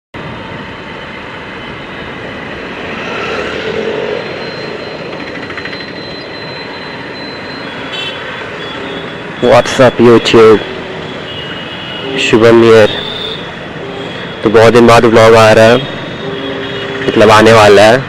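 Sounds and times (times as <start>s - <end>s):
road noise in traffic: 0.1s - 18.0s.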